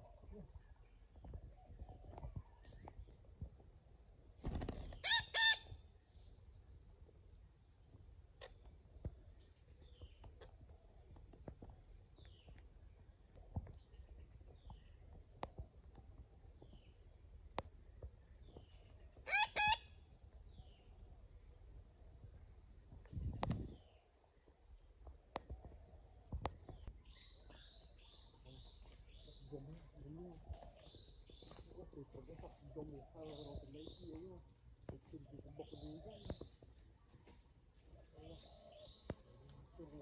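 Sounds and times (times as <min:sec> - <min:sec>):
shrill bird calls: 0:04.9 - 0:05.7, 0:19.2 - 0:19.9
small birds chirping: 0:25.0 - 0:40.0.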